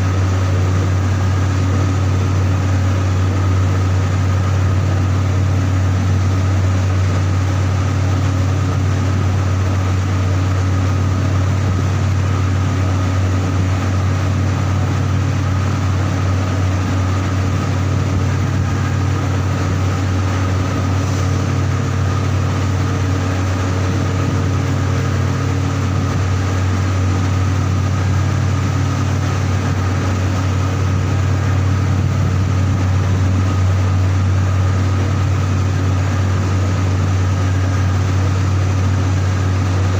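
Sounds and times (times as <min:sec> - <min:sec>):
heavy machinery low hum: 0:00.0 - 0:39.9
machinery high whine: 0:00.0 - 0:39.9.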